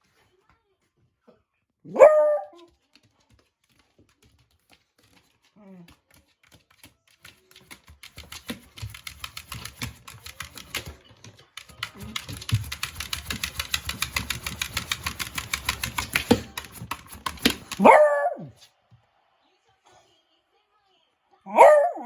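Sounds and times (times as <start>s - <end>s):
dog claws scraping on floor: 2.4s - 18.0s.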